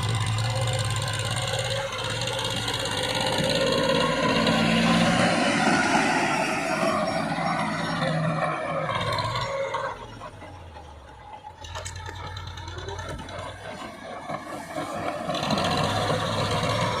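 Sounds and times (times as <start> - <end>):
tractor diesel engine humming: 0.0 - 17.0.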